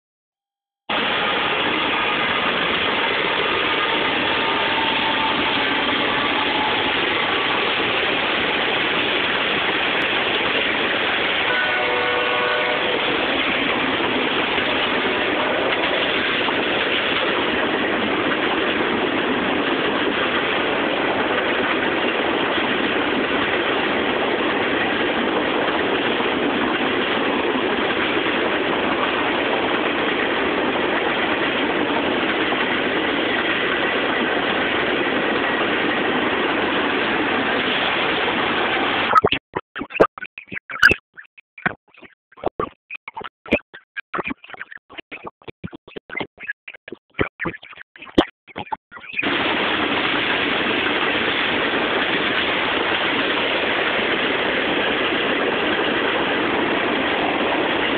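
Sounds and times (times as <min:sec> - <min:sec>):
freight train passing: 0:00.9 - 0:39.1, 0:49.1 - 0:57.9
brief pitched tone: 0:39.1 - 0:49.2.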